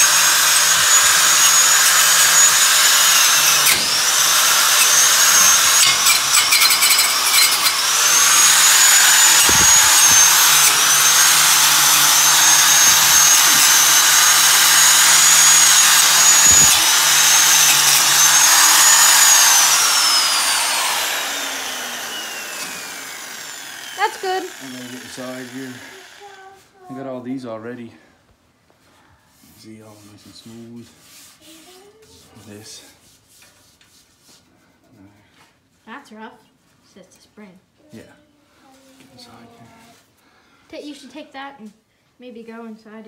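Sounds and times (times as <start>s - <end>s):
electric grinder on steel: 0.0s - 26.4s.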